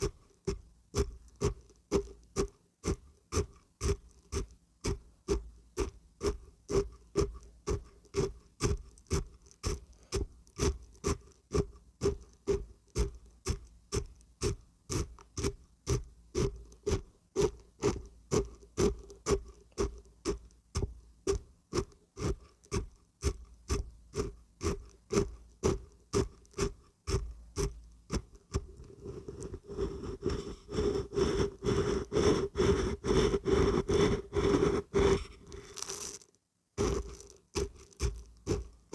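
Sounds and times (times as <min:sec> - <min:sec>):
dried beans rattling when shaken: 0:35.5 - 0:38.3.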